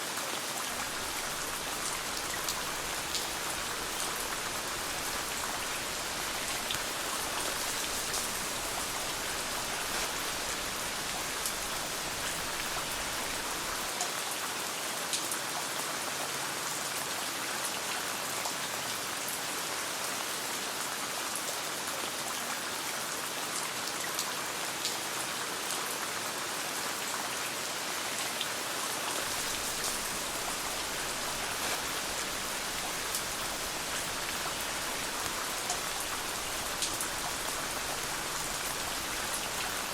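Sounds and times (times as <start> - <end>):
steady rain falling: 0.0 - 39.9
raindrops ticking: 0.8 - 13.9, 29.2 - 39.9.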